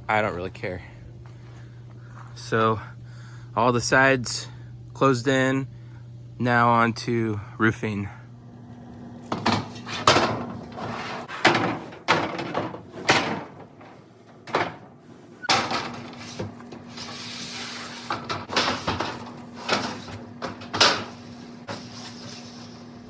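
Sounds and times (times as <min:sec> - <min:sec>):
steady hum: 0:00.0 - 0:23.0
knocks and bangs on metal roofing: 0:09.3 - 0:16.6.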